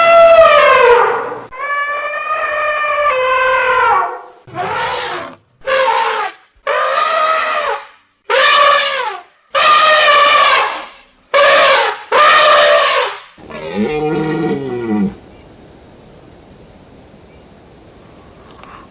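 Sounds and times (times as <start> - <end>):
lower animal call: 0.0 - 7.7, 13.4 - 15.6
animal calling loudly: 0.0 - 10.8, 11.4 - 15.2.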